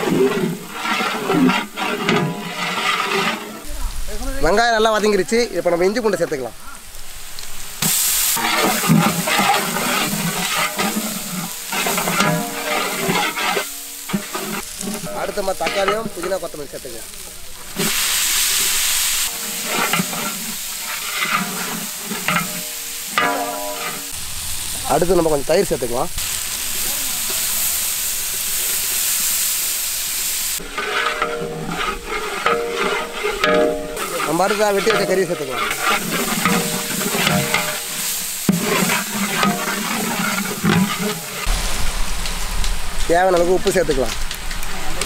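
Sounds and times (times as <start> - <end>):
ladle scraping pot: 0.0 - 3.7, 7.8 - 16.6, 19.3 - 24.2, 30.6 - 41.5
onions sizzling in hot oil: 0.0 - 45.0.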